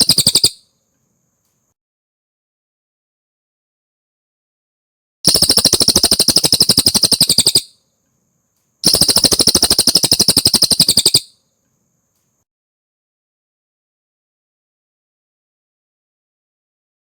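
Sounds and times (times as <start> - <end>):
bird song fast trills: 0.0 - 0.6, 5.3 - 7.8, 8.8 - 11.4.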